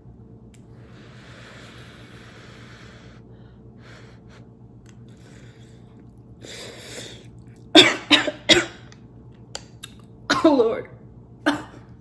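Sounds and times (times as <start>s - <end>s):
breathy intake of air: 0.8s - 4.5s
woman coughing: 7.8s - 8.9s, 10.3s - 10.8s, 11.4s - 11.9s.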